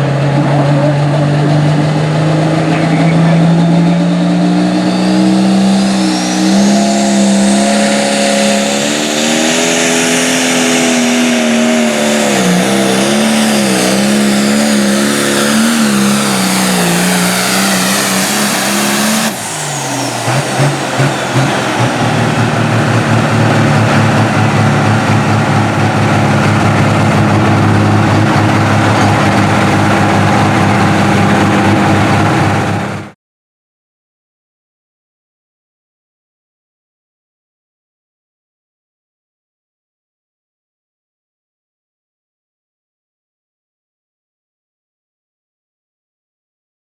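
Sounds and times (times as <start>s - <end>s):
engine running at high revs: 0.0s - 33.2s
tractor engine running under load: 5.6s - 33.1s.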